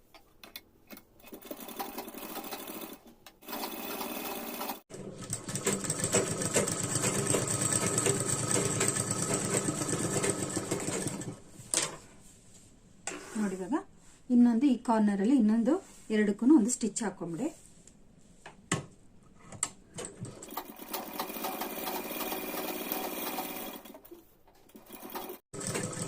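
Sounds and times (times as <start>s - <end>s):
sewing machine stitching fabric: 1.2s - 11.4s, 20.0s - 26.0s.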